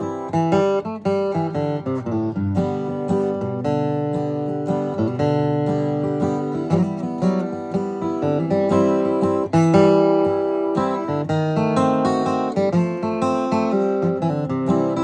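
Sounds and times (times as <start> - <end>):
acoustic guitar waltz melody: 0.0 - 15.0.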